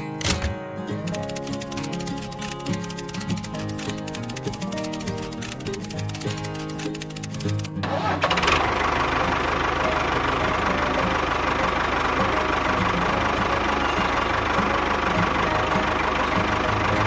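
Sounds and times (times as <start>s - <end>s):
small motor rattling: 1.0s - 9.9s.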